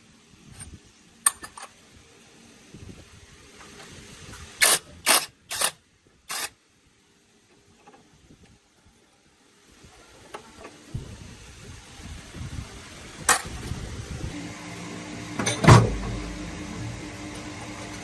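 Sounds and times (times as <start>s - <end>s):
steady low hum: 11.0s - 18.0s.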